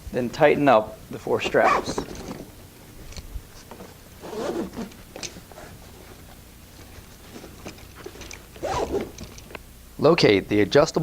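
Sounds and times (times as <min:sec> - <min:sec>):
straps being pulled tight: 0:01.4 - 0:02.4, 0:04.2 - 0:05.0, 0:07.8 - 0:09.5.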